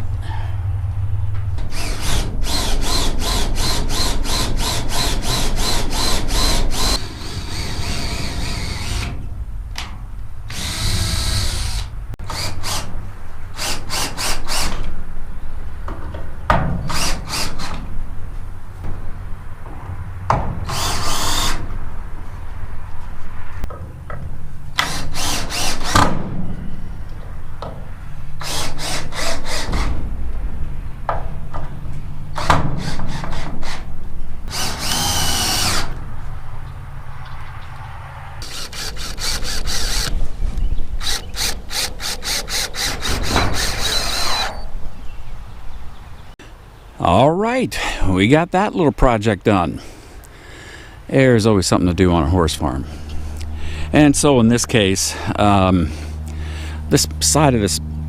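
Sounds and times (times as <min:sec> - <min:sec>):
power drill driving screws into metal: 0:01.7 - 0:09.2, 0:13.6 - 0:14.9, 0:16.9 - 0:17.8, 0:20.6 - 0:21.7, 0:24.8 - 0:26.2, 0:28.4 - 0:29.9, 0:34.5 - 0:36.0, 0:38.4 - 0:40.1, 0:41.0 - 0:44.6.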